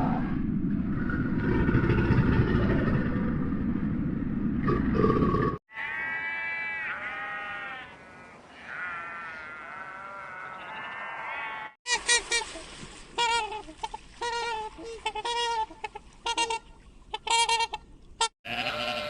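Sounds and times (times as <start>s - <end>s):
low rumbling noise: 0.0s - 5.6s
sheep bleating: 5.7s - 11.8s, 18.4s - 19.0s.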